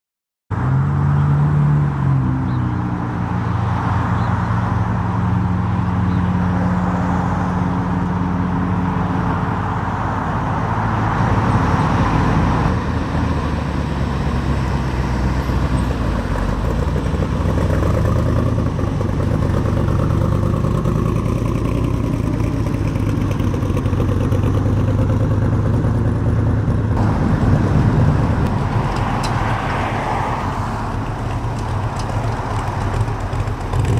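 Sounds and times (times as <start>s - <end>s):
car engine running: 16.2s - 33.9s.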